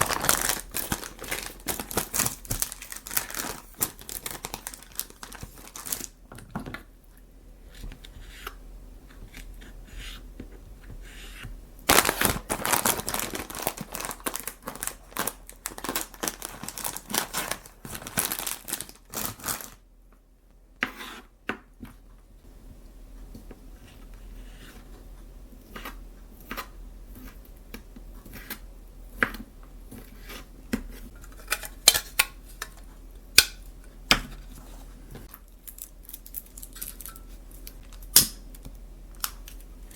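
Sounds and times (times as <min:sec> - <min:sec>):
plastic packaging crinkling: 0:00.0 - 0:06.2, 0:11.8 - 0:19.8.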